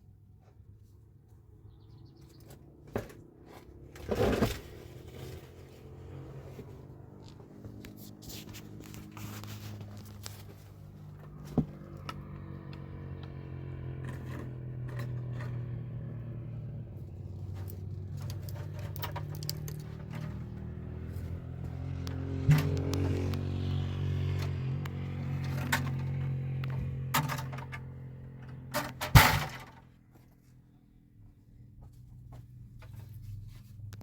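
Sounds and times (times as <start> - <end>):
low motor hum: 3.0 - 34.0
scraping and clicking: 17.5 - 20.6.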